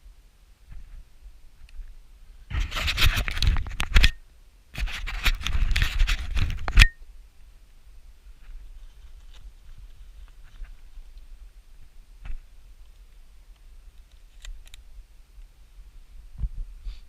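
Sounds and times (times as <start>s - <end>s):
rustling and scraping: 0.7s - 4.2s, 4.8s - 6.9s, 8.2s - 14.8s.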